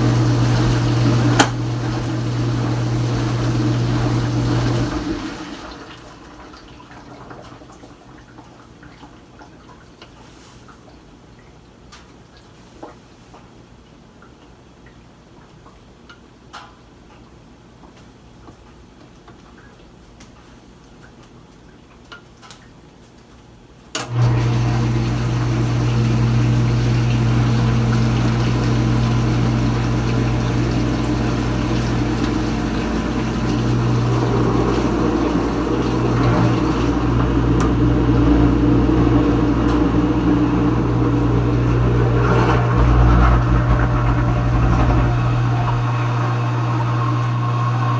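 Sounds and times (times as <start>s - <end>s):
dishwasher pump motor hum: 0.0s - 9.1s, 24.0s - 47.9s
water rushing inside dishwasher: 0.0s - 10.5s, 24.0s - 47.9s
faint drips and ticks: 7.3s - 23.4s.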